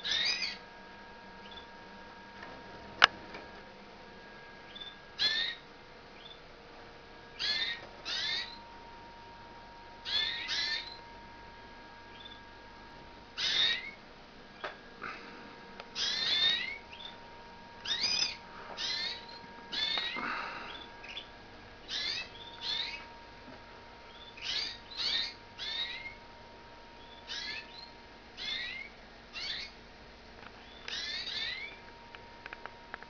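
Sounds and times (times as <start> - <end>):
canaries calling: 0.0 - 0.6, 1.4 - 1.7, 4.7 - 5.6, 6.2 - 6.4, 7.3 - 8.7, 10.0 - 11.1, 12.1 - 12.5, 13.4 - 14.0, 15.9 - 17.2, 17.8 - 23.2, 24.1 - 26.2, 27.0 - 29.8, 30.6 - 31.8.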